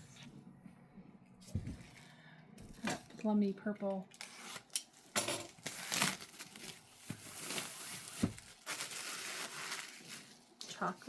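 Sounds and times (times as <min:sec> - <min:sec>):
fabric rustling: 0:05.9 - 0:10.9.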